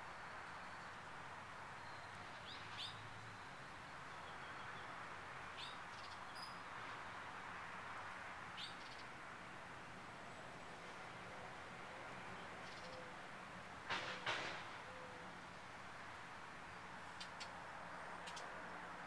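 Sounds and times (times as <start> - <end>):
bird chirping: 18.2 - 18.5.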